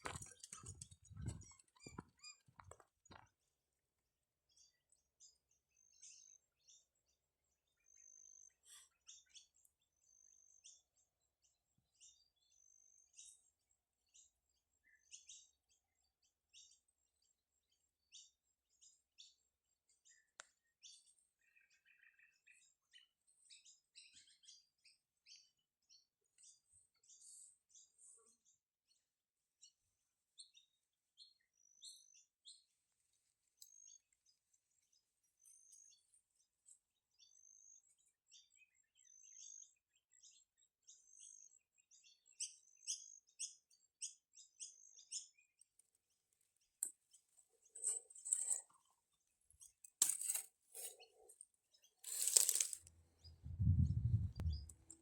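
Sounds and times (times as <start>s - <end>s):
faint birdsong chirps and whistles: 4.4s - 55.0s.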